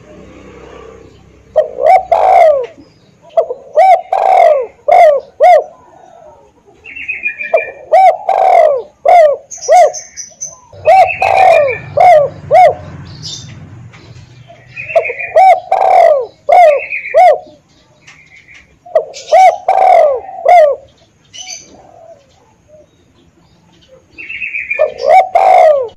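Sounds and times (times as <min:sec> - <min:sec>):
high bird chirping: 0:00.8 - 0:25.9
dove cooing: 0:01.5 - 0:13.5, 0:14.4 - 0:17.7, 0:18.5 - 0:25.9.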